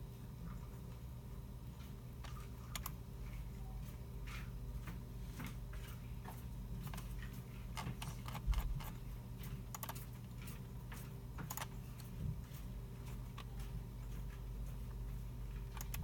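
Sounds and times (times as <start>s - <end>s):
steady low hum: 0.0s - 16.0s
computer keyboards typing: 2.2s - 4.1s, 6.2s - 16.0s.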